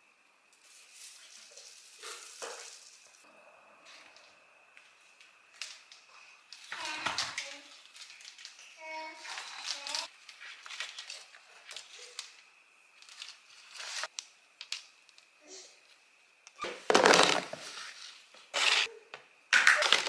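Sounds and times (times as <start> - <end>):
paper crinkling: 5.6 - 14.3
paper tearing: 18.5 - 18.9.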